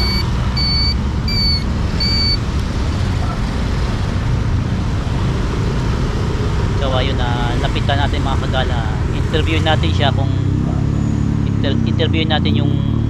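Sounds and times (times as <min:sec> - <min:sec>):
vehicle reversing alarm beeping: 0:00.0 - 0:02.6
road traffic rumble: 0:00.0 - 0:13.0.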